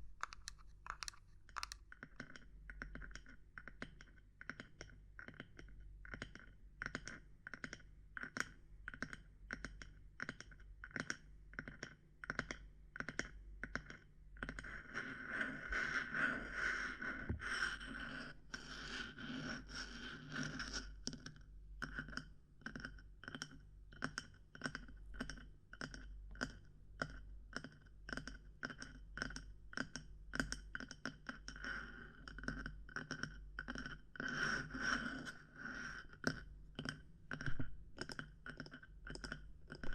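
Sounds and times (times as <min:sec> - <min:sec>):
light tapping on small objects: 0:00.0 - 0:04.9
scratching and scraping: 0:00.2 - 0:01.8, 0:34.3 - 0:36.1.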